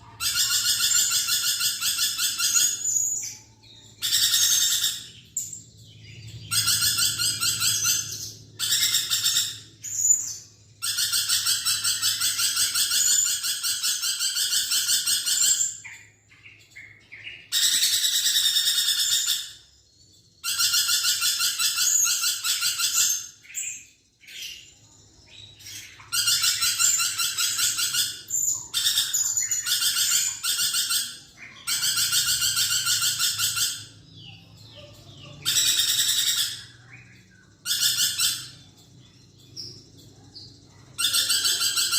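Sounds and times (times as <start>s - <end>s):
lorikeet shrill chattering trills: 0.0s - 19.6s, 20.4s - 39.8s, 40.9s - 41.9s.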